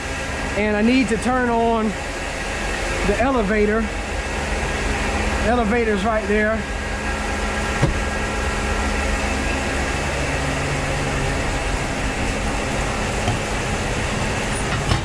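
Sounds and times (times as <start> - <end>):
grain machinery drone: 0.0 - 15.0.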